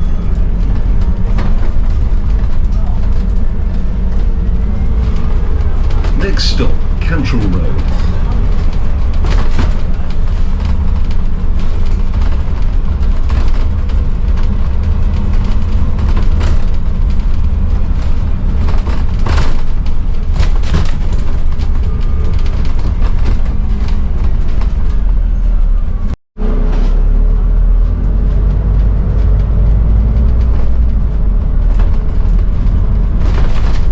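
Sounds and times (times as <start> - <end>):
bus body knocks and rattles: 0.0 - 33.9
bus engine and road rumble: 0.0 - 33.9.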